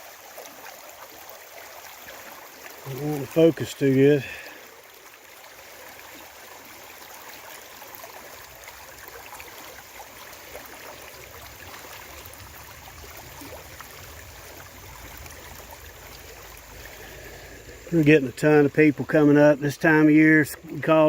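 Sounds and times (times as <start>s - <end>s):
creek water splashing over rocks: 0.0s - 21.0s.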